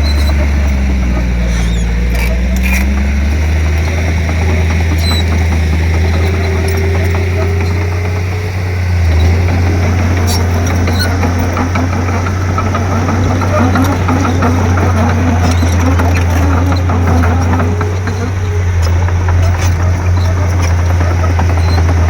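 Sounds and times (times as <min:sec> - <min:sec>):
bulldozer diesel engine running: 0:00.0 - 0:22.0.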